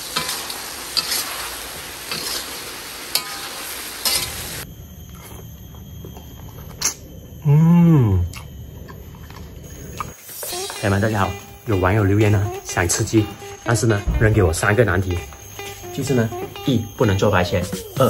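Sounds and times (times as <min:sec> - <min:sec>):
food sizzling in a wok: 0:00.0 - 0:04.7, 0:10.1 - 0:13.7.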